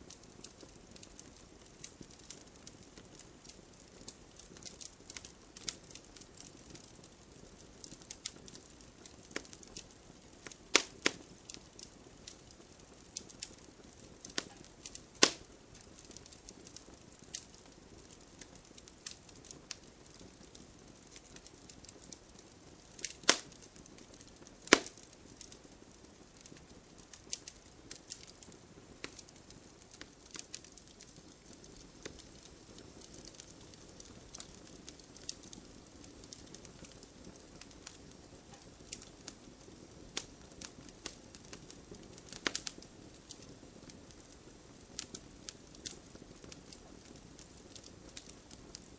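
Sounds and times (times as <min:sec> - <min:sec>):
wood fire crackling: 0:00.0 - 0:48.9
loud fire pops: 0:07.8 - 0:22.1, 0:23.0 - 0:25.6, 0:26.3 - 0:44.3.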